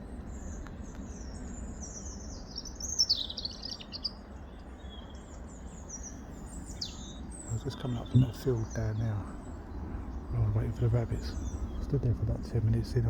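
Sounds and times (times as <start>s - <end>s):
songbirds twittering: 0.0s - 13.0s
steady low rumble: 7.3s - 13.0s.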